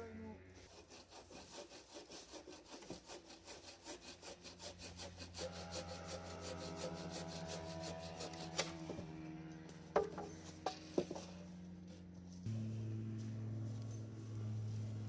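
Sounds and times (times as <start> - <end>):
saw cutting through wood: 0.5 - 11.3.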